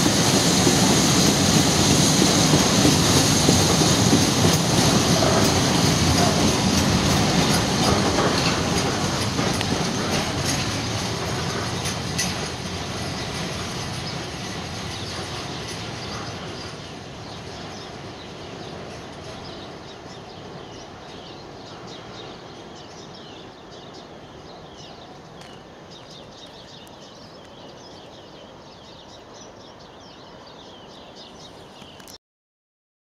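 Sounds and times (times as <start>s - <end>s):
freight train rumble: 0.0s - 31.8s
small birds chirping: 13.2s - 32.2s.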